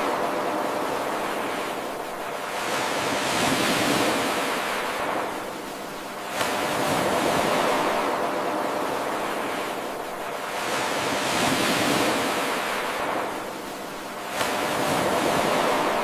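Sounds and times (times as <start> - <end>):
ocean surf washing: 0.0 - 16.0.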